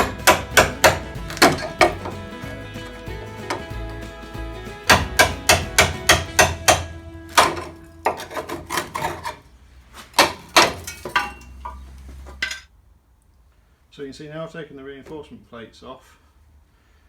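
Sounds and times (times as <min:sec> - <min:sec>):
hammer striking steel: 0:00.0 - 0:02.3, 0:04.8 - 0:09.3
background music: 0:00.0 - 0:09.2.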